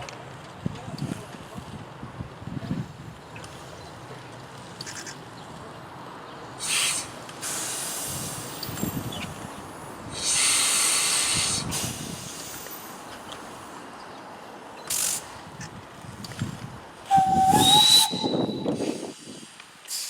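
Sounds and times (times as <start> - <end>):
steam locomotive hissing: 6.6 - 13.9, 14.8 - 15.5, 17.0 - 20.0.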